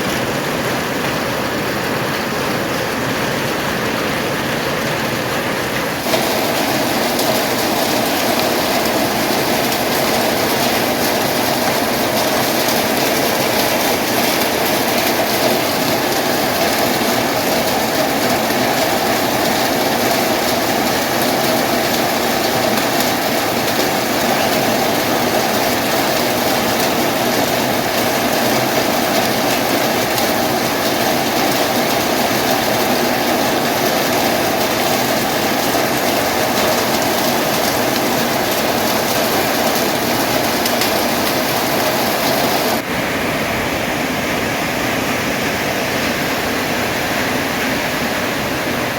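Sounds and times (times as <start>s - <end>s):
heavy rain on a metal roof: 0.0s - 48.9s.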